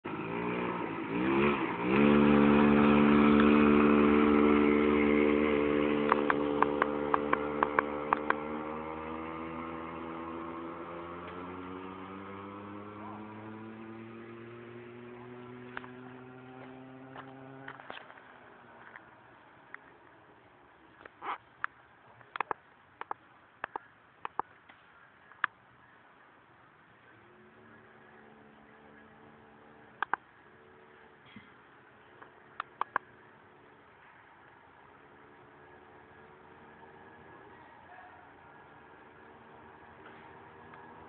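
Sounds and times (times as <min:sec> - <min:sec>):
motorcycle engine revving: 0:00.0 - 0:19.3, 0:27.1 - 0:33.8, 0:34.9 - 0:41.0
sharp clicks: 0:06.0 - 0:08.4, 0:21.0 - 0:25.6, 0:30.0 - 0:30.3, 0:32.2 - 0:33.1.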